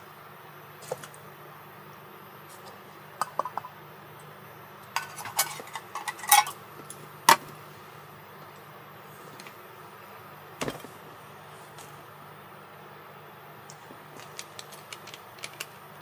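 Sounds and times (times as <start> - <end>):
dishes and cutlery clinking: 5.0 - 6.6.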